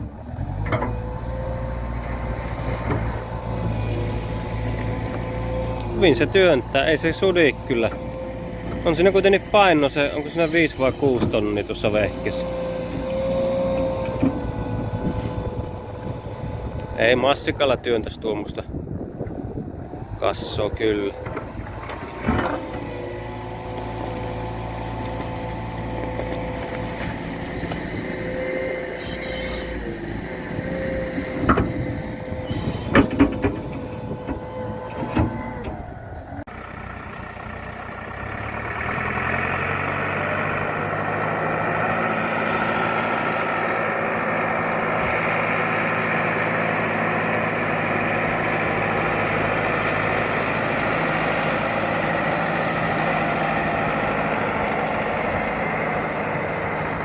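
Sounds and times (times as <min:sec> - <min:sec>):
tractor diesel engine running: 0:00.0 - 0:57.0
sharp knocks and clanks: 0:31.2 - 0:35.8.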